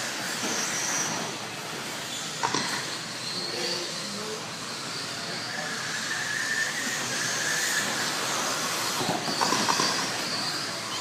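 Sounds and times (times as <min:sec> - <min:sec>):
clatters: 0:00.0 - 0:03.1, 0:06.8 - 0:11.0
high motor whines: 0:00.0 - 0:11.0
hiss of tyres and motors: 0:00.0 - 0:11.0.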